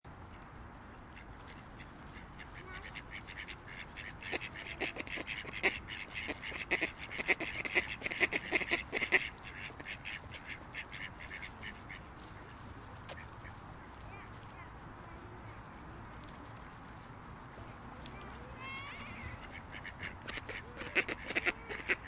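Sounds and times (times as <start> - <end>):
outdoor background hiss: 0.1 - 22.0
ducks quacking: 1.0 - 15.8, 18.0 - 22.0.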